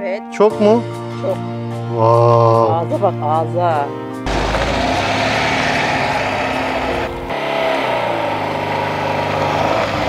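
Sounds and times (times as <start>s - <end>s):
car engine running: 4.3s - 10.0s.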